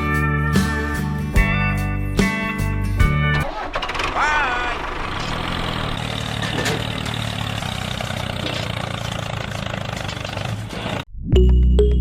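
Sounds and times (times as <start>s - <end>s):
tractor engine idling: 3.3s - 11.0s.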